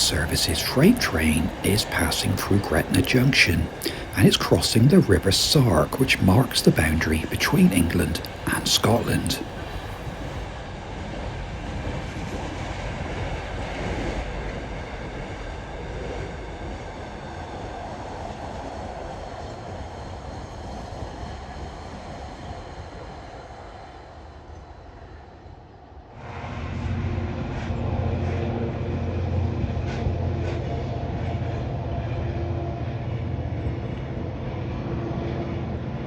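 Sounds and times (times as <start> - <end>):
freight train rumbling past: 0.0 - 10.4
low steady hum: 0.0 - 10.4.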